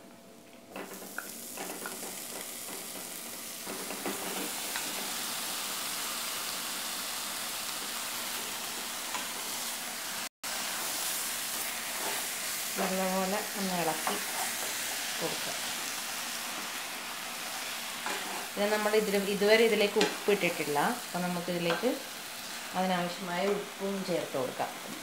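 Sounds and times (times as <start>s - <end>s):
chicken sizzling in hot oil: 0.7s - 25.0s.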